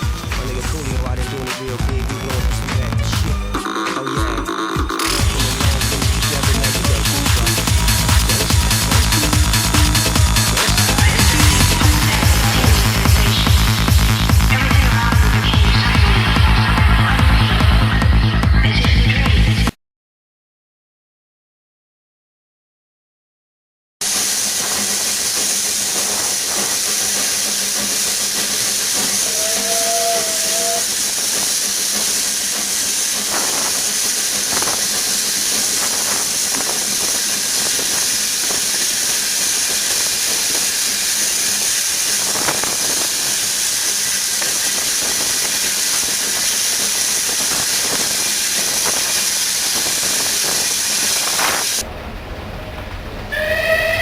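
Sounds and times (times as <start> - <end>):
steam locomotive hissing: 0.0 - 18.5, 24.0 - 54.0
train whistle: 28.0 - 41.6, 53.3 - 54.0.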